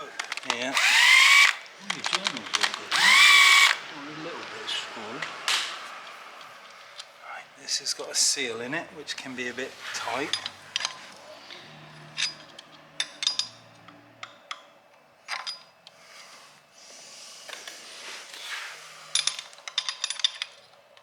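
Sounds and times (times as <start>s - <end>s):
metal clinks and scrapes: 9.9s - 14.0s, 18.3s - 20.8s.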